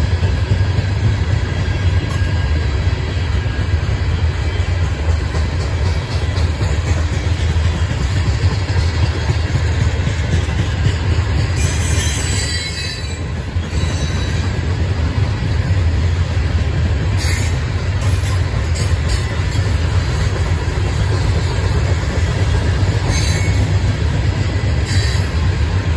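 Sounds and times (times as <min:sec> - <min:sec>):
freight train rumble: 0:00.0 - 0:25.9
high-pitched wheel squeal: 0:11.6 - 0:13.2.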